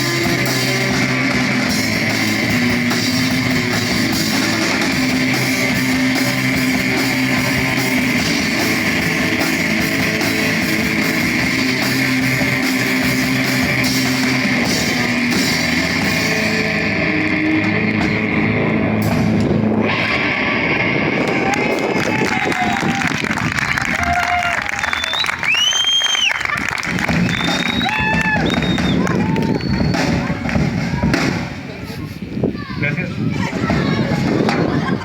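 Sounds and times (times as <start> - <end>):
drum kit: 0.0 - 23.0, 25.1 - 31.9, 33.5 - 35.0
electric guitar: 0.0 - 25.1.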